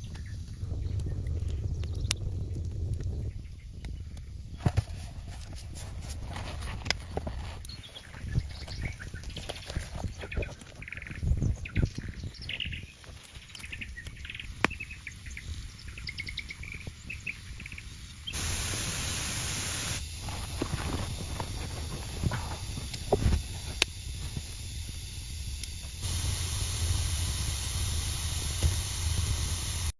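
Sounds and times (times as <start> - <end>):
steady hiss: 0.4 - 29.9
birds chirping: 7.6 - 22.0.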